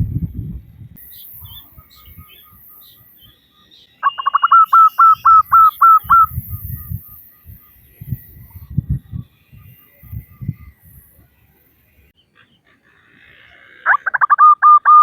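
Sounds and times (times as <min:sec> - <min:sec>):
dove calling in short notes: 0:04.0 - 0:07.4.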